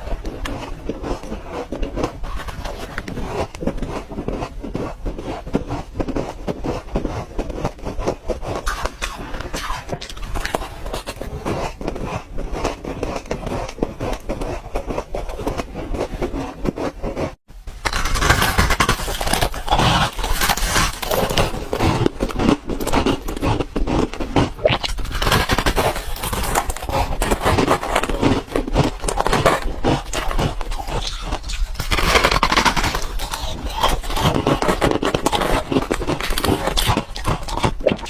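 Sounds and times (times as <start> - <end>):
ice cubes crunching in mouth: 17.7 - 38.0.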